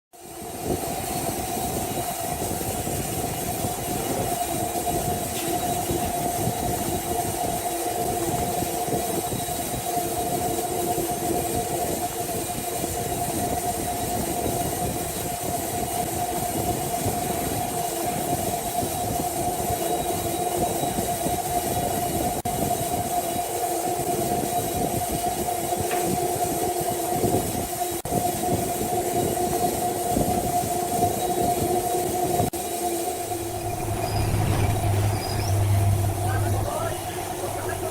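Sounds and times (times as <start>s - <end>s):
sawmill saw running: 32.8s - 37.9s.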